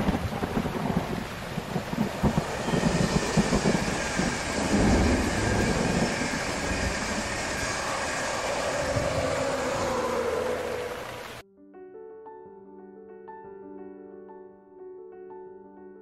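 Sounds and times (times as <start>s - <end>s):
passenger train rumbling past: 0.0s - 11.4s.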